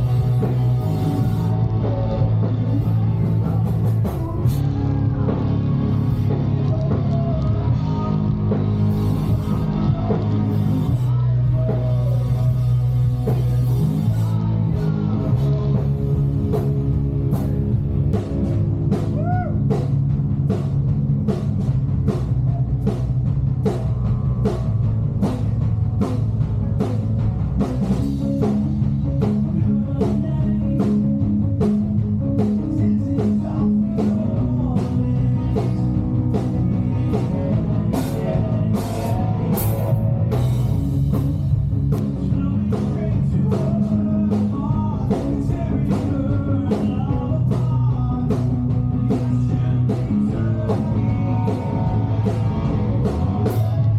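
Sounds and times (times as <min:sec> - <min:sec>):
person singing: 0:00.0 - 0:17.8, 0:29.2 - 0:31.6, 0:32.4 - 0:40.3, 0:42.0 - 0:53.9
rock band playing: 0:00.0 - 0:53.9.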